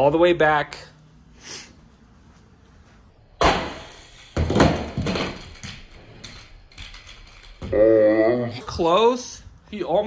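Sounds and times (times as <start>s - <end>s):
toy trucks clacking and rattling: 5.0s - 7.7s.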